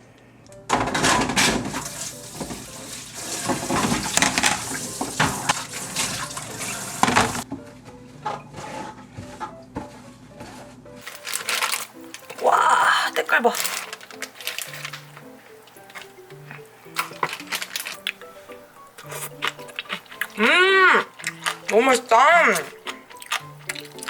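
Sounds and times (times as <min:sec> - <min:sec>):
dishes and utensils clinking: 0:00.7 - 0:07.5, 0:13.2 - 0:20.5
water running: 0:01.2 - 0:07.5, 0:11.0 - 0:24.0.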